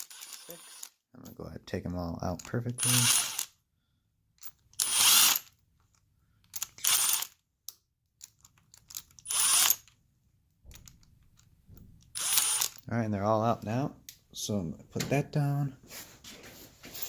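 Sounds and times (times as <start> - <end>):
impact wrench spinning bolts: 0.0 - 0.9, 2.8 - 3.5, 4.8 - 5.4, 6.6 - 7.4, 9.2 - 9.9, 12.2 - 12.8.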